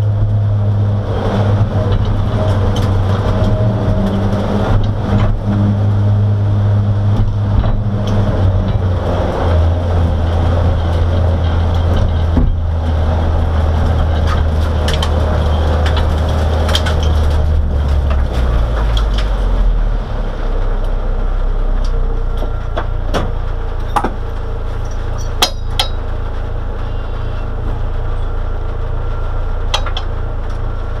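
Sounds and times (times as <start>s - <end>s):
car engine at low revs: 0.0s - 31.0s
car body knocks and rattles: 7.0s - 9.0s, 10.4s - 13.4s, 22.4s - 24.3s.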